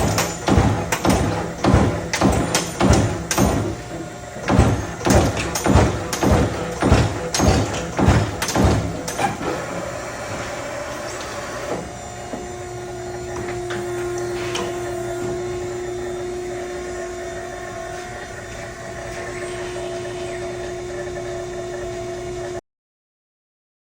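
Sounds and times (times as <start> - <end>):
turret punch striking sheet metal: 0.0 - 3.8, 4.4 - 9.4
machine humming: 0.0 - 22.6.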